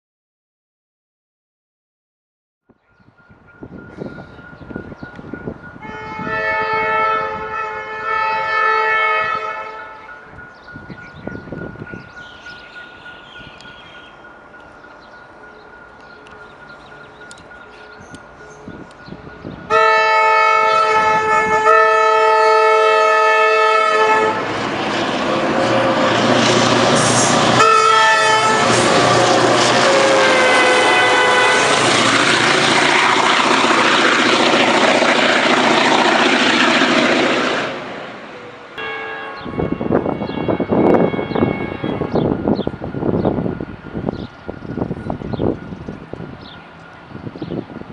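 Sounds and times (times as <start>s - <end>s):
diesel locomotive passing: 2.8s - 47.9s
locomotive horn blasts: 5.8s - 10.2s, 19.7s - 24.7s, 25.4s - 32.0s, 38.4s - 43.1s.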